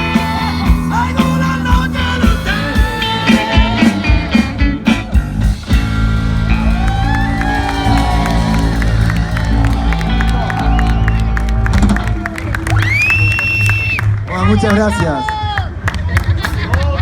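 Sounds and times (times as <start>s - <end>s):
live rock band playing: 0.0s - 12.8s
drum hits: 0.7s - 12.3s.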